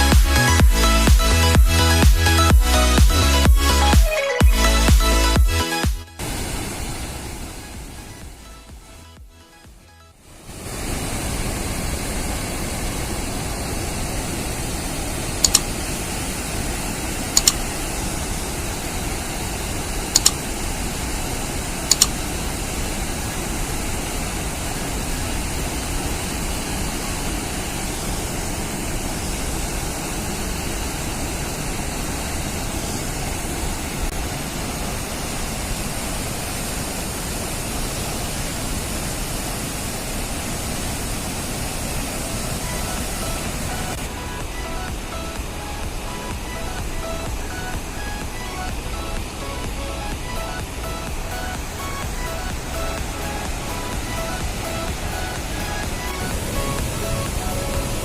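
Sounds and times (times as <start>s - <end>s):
floodwater rushing: 6.2s - 8.6s, 10.2s - 58.0s
sharp clicks: 15.4s - 15.8s, 17.3s - 17.7s, 20.2s - 20.4s, 21.9s - 22.2s.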